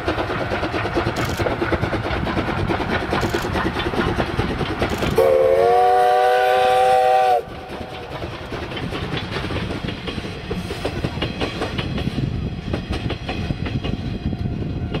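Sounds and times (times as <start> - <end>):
wheels clattering over rail joints: 0.0 - 5.2, 7.5 - 14.2
train rumbling: 0.0 - 15.0
train whistle chord: 5.2 - 7.5.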